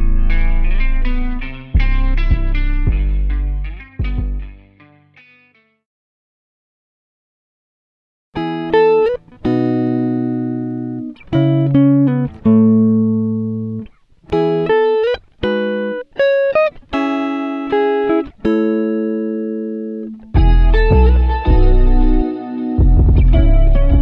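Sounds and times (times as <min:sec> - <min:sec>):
slow plucked guitar melody: 0:00.0 - 0:05.8, 0:08.4 - 0:24.0.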